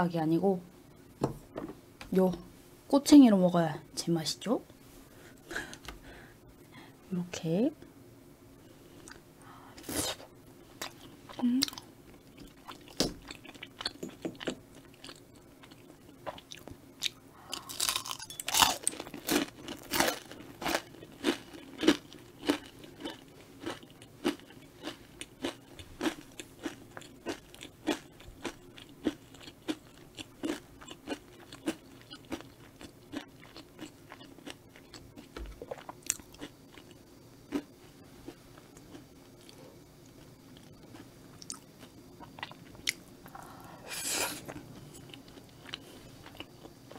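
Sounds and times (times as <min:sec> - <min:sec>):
chewing with wet mouth clicks: 0:21.7 - 0:37.7.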